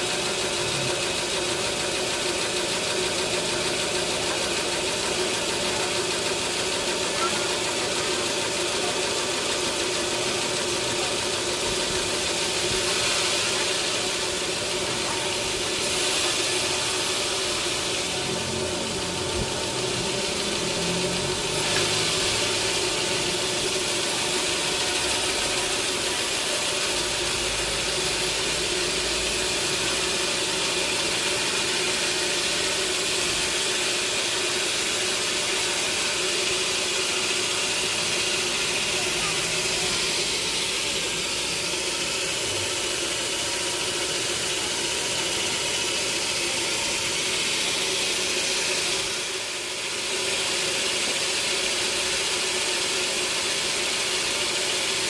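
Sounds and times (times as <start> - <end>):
sawmill machinery hum: 0.0 - 55.0.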